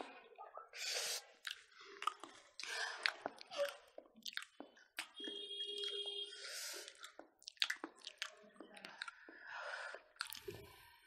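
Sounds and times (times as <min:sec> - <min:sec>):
wet chewing and squishing: 0:01.2 - 0:11.0.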